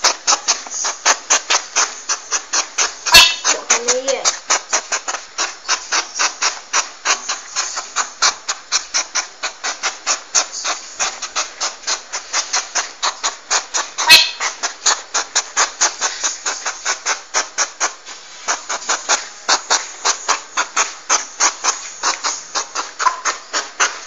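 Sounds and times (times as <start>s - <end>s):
porcupine rasping pulses: 0.0s - 24.0s.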